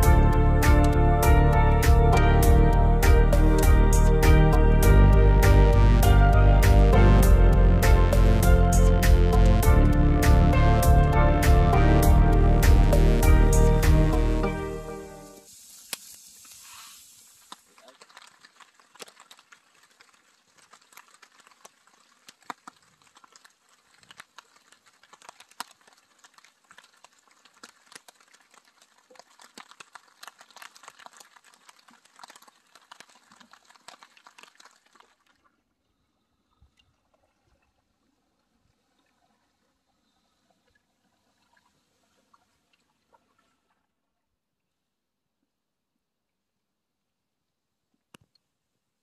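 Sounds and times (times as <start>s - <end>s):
rain pattering overhead: 17.2s - 35.1s.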